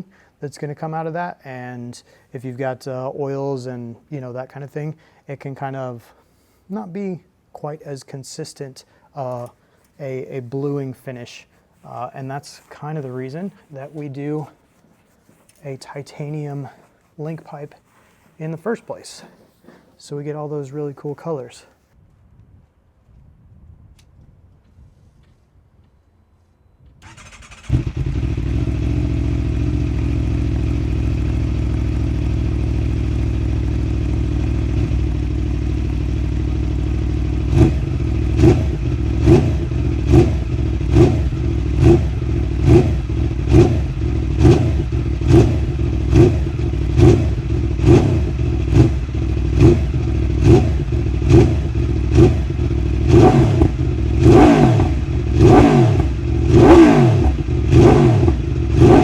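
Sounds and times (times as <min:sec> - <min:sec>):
motorcycle starter cranking: 0:27.0 - 0:29.0
motorcycle engine idling and revving: 0:27.0 - 0:59.0.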